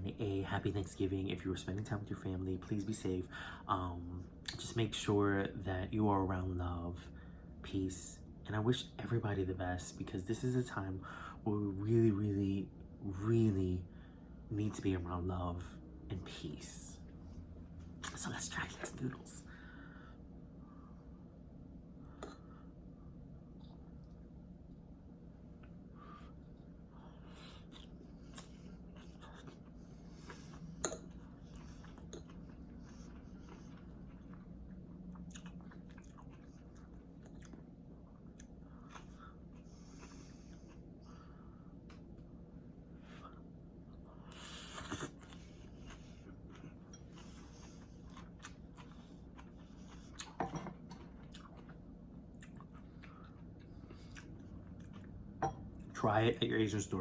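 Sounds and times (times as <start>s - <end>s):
chewing noodles: 27.1s - 41.2s, 43.3s - 55.2s.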